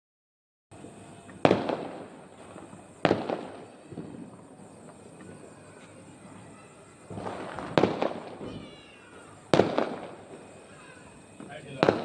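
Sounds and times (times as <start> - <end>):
fireworks bangs: 0.7 - 12.0.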